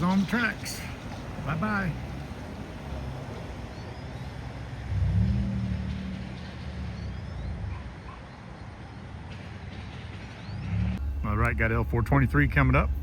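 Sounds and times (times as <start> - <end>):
vehicle engine revving: 4.6 - 8.1.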